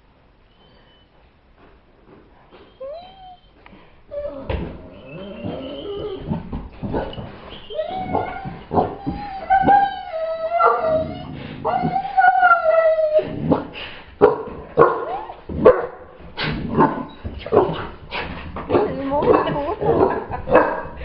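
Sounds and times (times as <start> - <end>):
dog whining: 2.5 - 13.7, 14.9 - 15.5.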